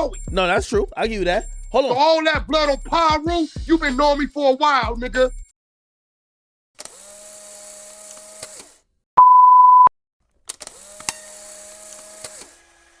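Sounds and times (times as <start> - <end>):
loud electronic beep: 9.2 - 9.9.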